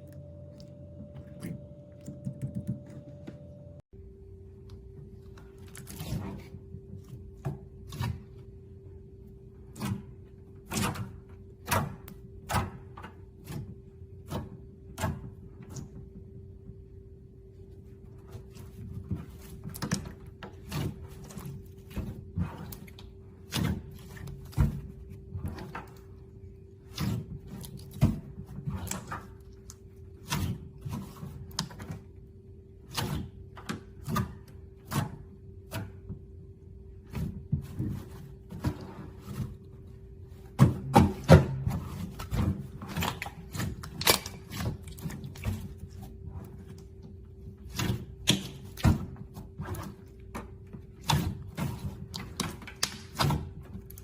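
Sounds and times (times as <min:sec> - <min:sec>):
faint steady hum: 0:00.0 - 0:13.1.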